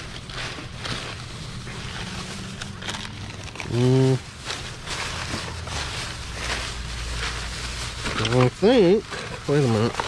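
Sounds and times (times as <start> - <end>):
plastic bag rustling: 0.0 - 10.0
person humming: 3.6 - 4.2.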